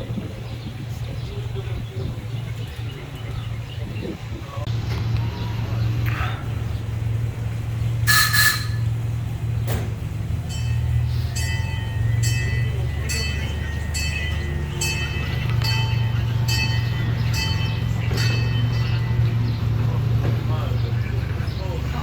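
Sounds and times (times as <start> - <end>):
amusement park train rumbling: 0.0 - 22.0
bell ringing: 10.5 - 19.4.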